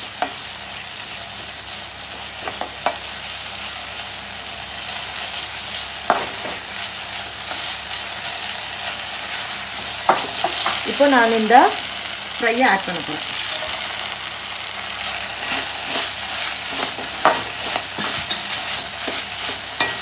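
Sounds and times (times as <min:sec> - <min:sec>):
onions sizzling in a pan: 0:00.0 - 0:20.0
metal spoon scraping a pan: 0:13.2 - 0:20.0.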